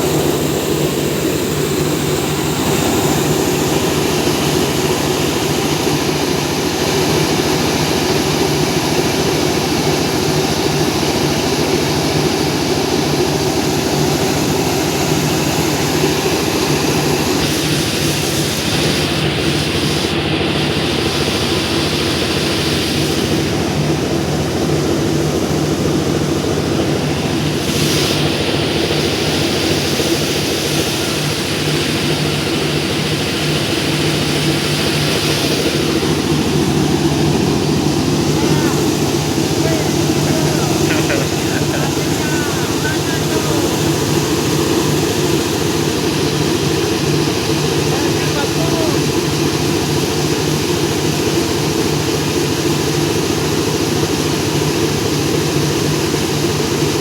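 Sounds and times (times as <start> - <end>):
rice milling machine drone: 0.0 - 57.0
rushing noise: 33.7 - 49.6.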